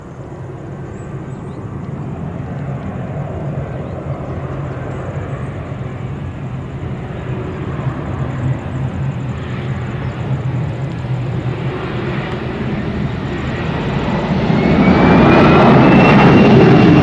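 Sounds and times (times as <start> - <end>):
jet airliner engines: 0.0 - 17.0.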